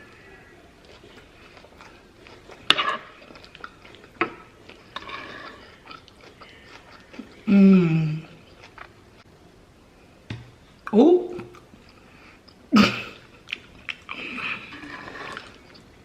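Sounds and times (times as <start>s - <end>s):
chewing food: 0.0s - 7.5s, 8.2s - 9.3s, 13.2s - 16.0s
voiced hum falling in pitch: 7.5s - 8.4s.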